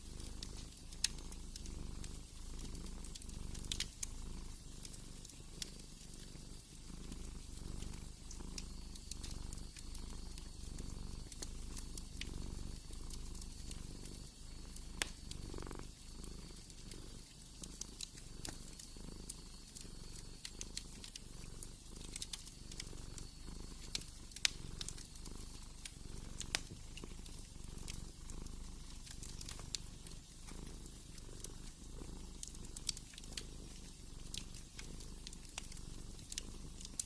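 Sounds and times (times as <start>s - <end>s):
cat purring: 0.0s - 37.0s
wood fire crackling: 0.0s - 37.0s.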